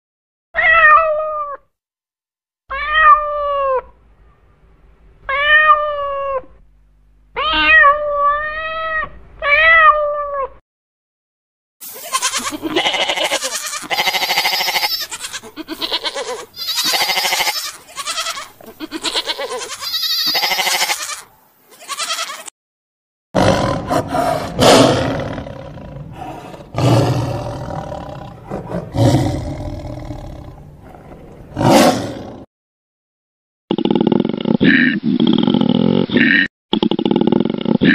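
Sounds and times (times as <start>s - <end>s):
sheep and lambs bleating: 11.9s - 22.5s
lion roaring: 23.4s - 32.5s.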